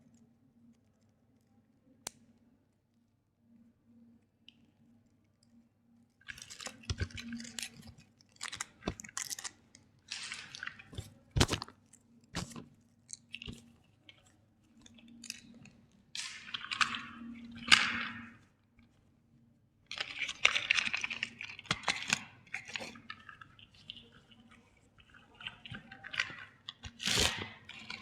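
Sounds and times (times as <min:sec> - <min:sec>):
faint low hum: 0:00.0 - 0:21.4
plastic crinkling and crunching: 0:06.3 - 0:18.4, 0:19.9 - 0:28.0.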